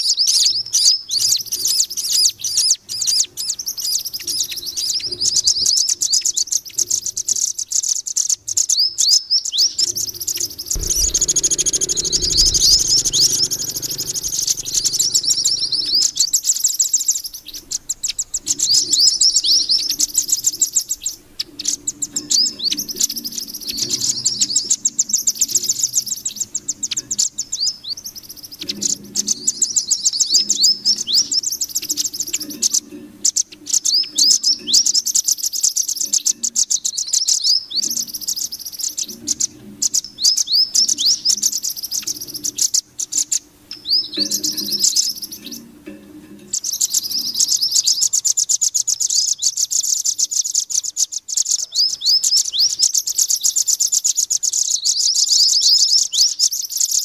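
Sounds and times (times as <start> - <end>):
high sharp bird chirps: 7.4 - 45.6
low hum: 9.9 - 24.5.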